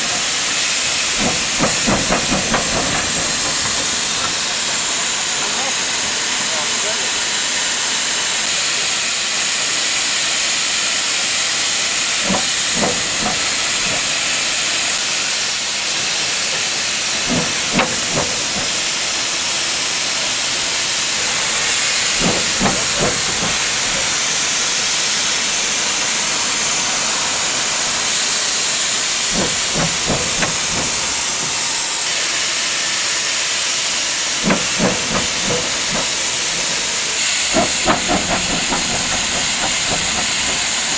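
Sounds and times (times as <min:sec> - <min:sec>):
steam hissing: 0:00.0 - 0:40.9
short knocks: 0:01.1 - 0:04.6, 0:12.2 - 0:14.2, 0:17.3 - 0:19.0, 0:22.1 - 0:24.2, 0:29.3 - 0:31.8, 0:34.4 - 0:40.9.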